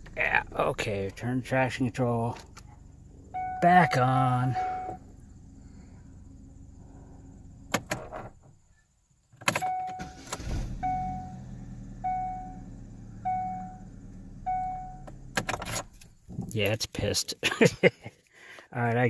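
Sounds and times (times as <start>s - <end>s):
car engine idling: 0.0s - 8.8s, 9.9s - 16.4s
dashboard warning chime: 3.3s - 5.0s, 9.6s - 10.2s, 10.8s - 11.4s, 12.0s - 12.6s, 13.2s - 13.8s, 14.5s - 15.0s
starter motor cranking: 10.0s - 10.8s.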